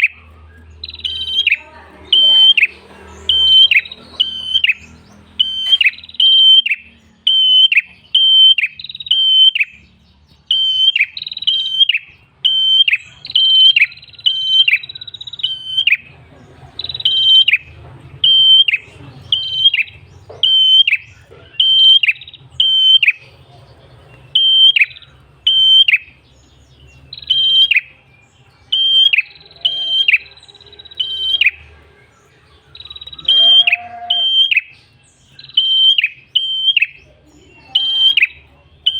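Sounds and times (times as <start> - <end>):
low bird call: 0.0 - 9.9, 16.8 - 28.0, 32.8 - 38.9
tailorbird chirping: 0.0 - 38.9.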